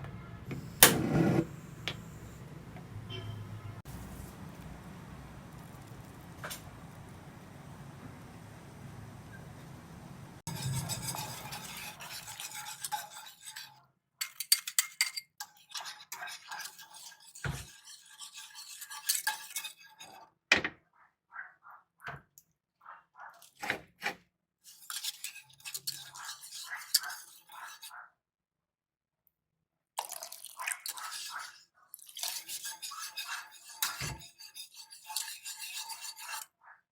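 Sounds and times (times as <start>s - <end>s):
spoon scraping a bowl: 0.6s - 1.6s, 10.5s - 20.3s, 24.7s - 27.9s, 30.4s - 36.6s.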